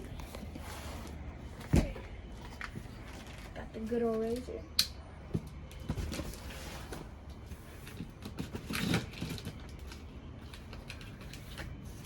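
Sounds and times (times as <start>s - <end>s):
tape tearing: 7.9s - 10.0s.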